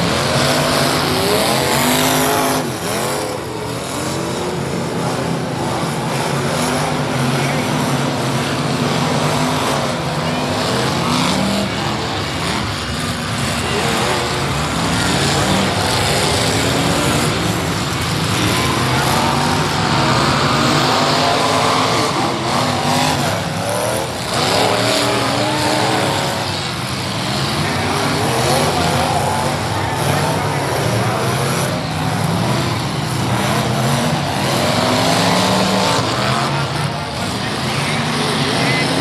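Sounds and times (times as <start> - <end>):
car engines revving: 0.0 - 39.0.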